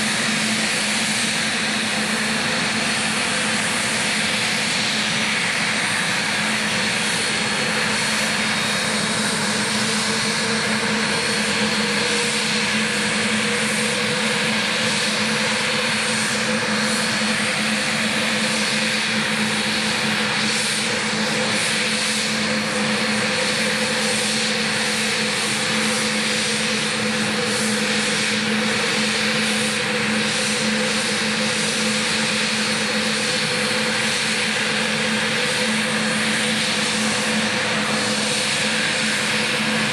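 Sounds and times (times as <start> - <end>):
jet engines roaring: 0.0 - 39.9.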